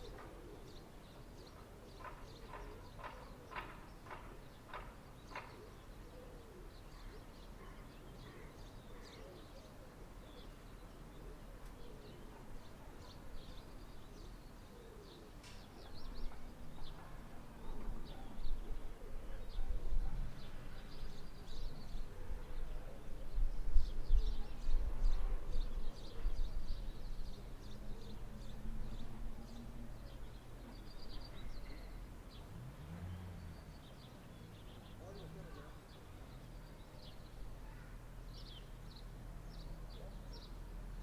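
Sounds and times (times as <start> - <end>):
doves cooing: 0.0 - 13.7, 14.6 - 16.7, 17.6 - 20.5
small birds chirping: 0.0 - 41.0.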